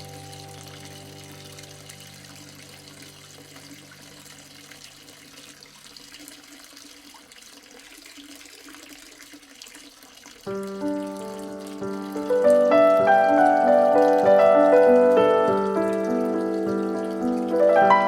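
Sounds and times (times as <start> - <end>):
soft held music tones: 0.0 - 5.8
gently running water: 0.0 - 18.0.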